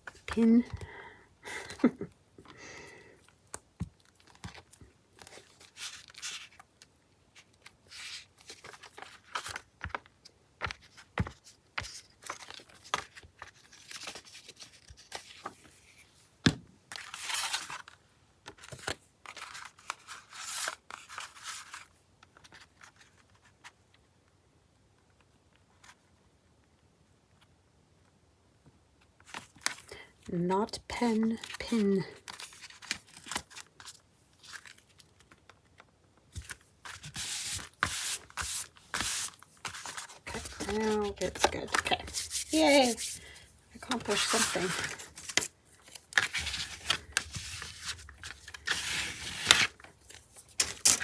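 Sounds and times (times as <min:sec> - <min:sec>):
paper rustling and scraping: 0:16.9 - 0:23.7, 0:36.3 - 0:51.0.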